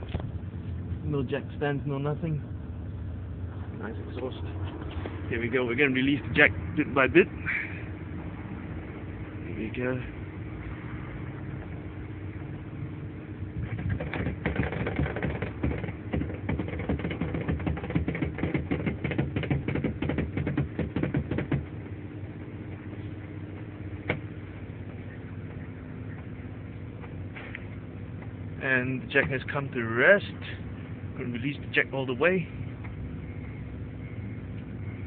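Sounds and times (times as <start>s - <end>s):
steady low hum: 0.0s - 35.0s
car jack clicking and creaking: 13.6s - 21.8s.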